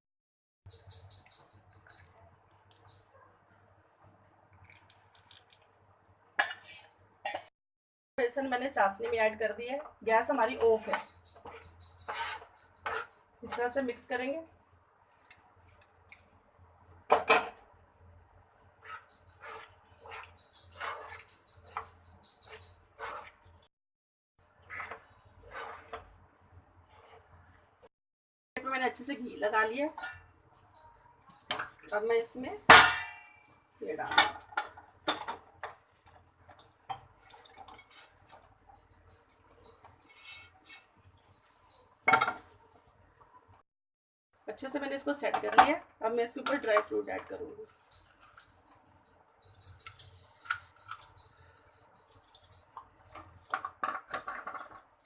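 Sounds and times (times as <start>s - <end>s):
spatula scraping metal pan: 10.6s - 13.7s, 18.8s - 23.6s, 24.6s - 26.1s, 39.7s - 41.8s
spatula scraping and tapping in a pan: 10.6s - 14.4s, 18.5s - 23.7s, 24.6s - 27.7s, 29.8s - 32.8s, 33.4s - 42.8s, 49.4s - 55.0s.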